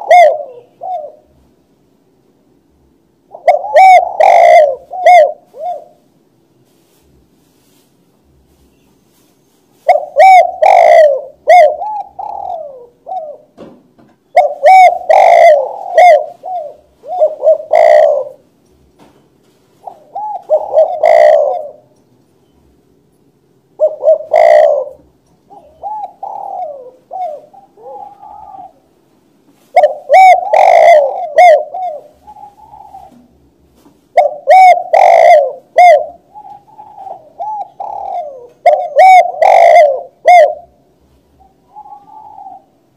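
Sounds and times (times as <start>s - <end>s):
dove cooing: 0.0s - 1.4s, 3.2s - 6.1s, 9.8s - 13.6s, 14.3s - 18.5s, 19.7s - 21.9s, 23.8s - 29.0s, 29.6s - 42.9s.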